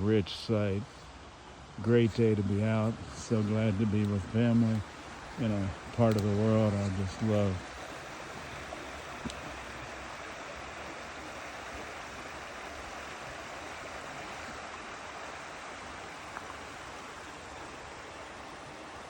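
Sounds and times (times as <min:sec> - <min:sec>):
stream rushing over rocks: 0:00.0 - 0:19.0
faint clicks: 0:05.9 - 0:06.9, 0:09.2 - 0:09.4.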